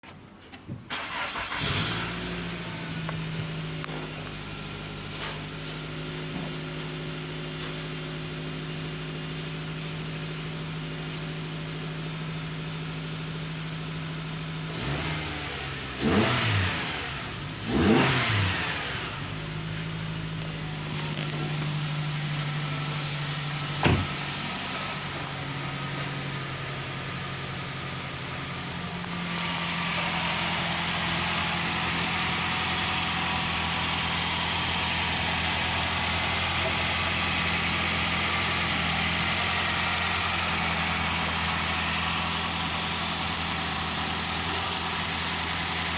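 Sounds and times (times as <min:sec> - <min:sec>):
car engine starting and idling: 0:00.0 - 0:45.9
car engine revving: 0:00.9 - 0:05.2, 0:14.1 - 0:45.9.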